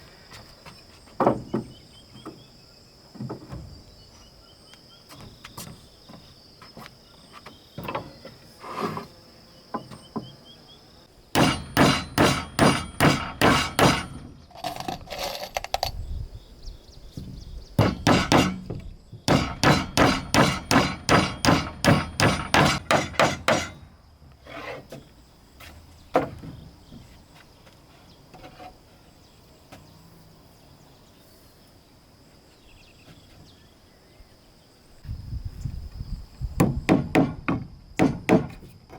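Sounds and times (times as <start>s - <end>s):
high insect buzz: 4.9s - 12.5s
hammer blows on wood: 11.4s - 14.3s, 17.8s - 23.8s.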